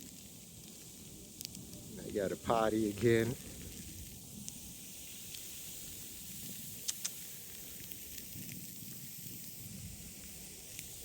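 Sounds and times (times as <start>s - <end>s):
hiss of falling snow: 0.0s - 11.0s
short sharp clicks: 6.8s - 7.2s.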